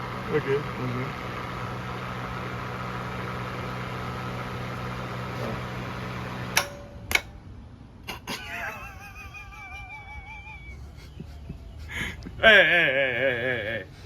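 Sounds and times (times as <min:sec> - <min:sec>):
car engine humming: 0:00.0 - 0:07.5
sharp clicks or knocks: 0:06.5 - 0:07.4.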